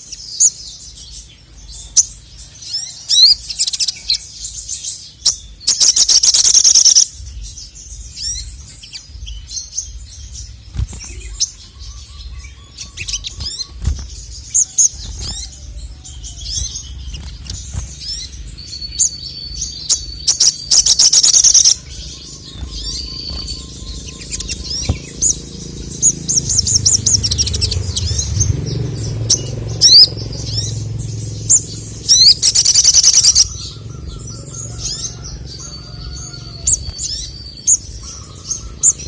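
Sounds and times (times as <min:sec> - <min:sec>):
bird singing high chirps: 0:00.0 - 0:39.0
low steady rumble: 0:07.0 - 0:39.0
loud rapid chattering trill: 0:19.7 - 0:25.4.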